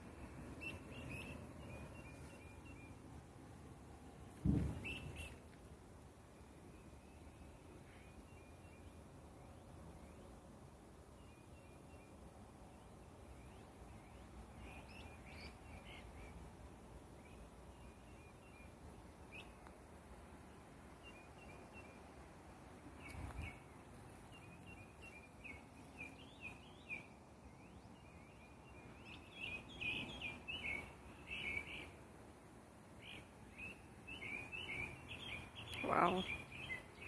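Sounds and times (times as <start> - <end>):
songbirds chirping and singing: 0.0 - 37.0
low thud: 4.3 - 5.2.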